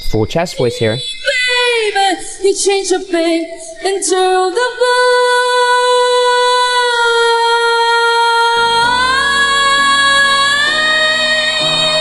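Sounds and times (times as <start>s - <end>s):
woman singing high note: 1.3s - 12.0s
low accompaniment chords: 8.5s - 12.0s.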